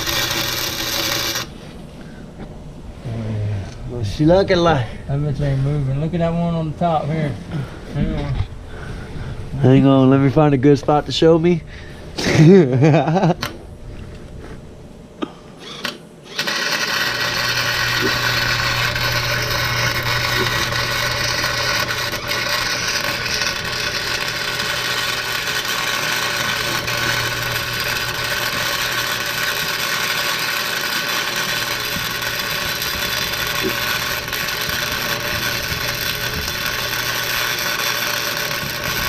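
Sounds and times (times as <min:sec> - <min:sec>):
arc welder crackling sizzle: 0:00.0 - 0:01.9, 0:15.6 - 0:39.0.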